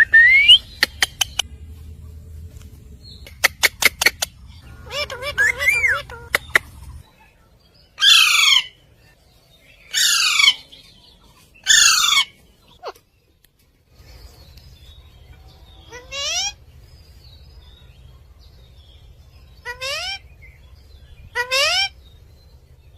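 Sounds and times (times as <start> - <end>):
parakeet calling: 3.3 - 7.0, 8.0 - 8.8, 9.9 - 10.7, 11.6 - 12.9, 15.8 - 16.6, 19.4 - 22.0.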